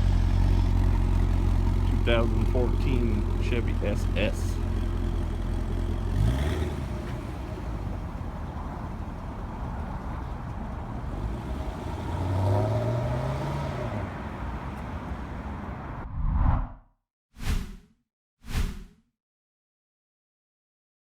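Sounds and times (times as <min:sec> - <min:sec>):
car engine pulling away: 0:00.0 - 0:16.0
swoosh transition effect: 0:16.0 - 0:16.8.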